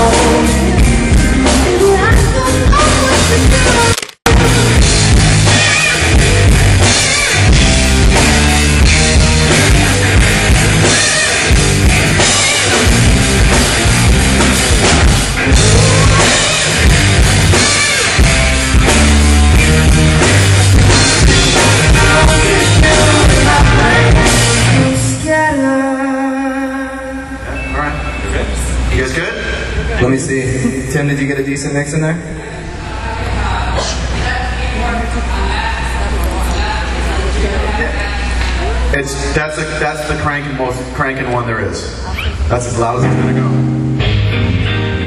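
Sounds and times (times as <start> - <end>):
person singing: 0.0 - 5.0, 21.2 - 27.6
drum kit: 0.0 - 25.3
live rock band playing: 0.0 - 25.6, 42.2 - 45.0
electric guitar: 0.0 - 28.9, 42.0 - 45.0.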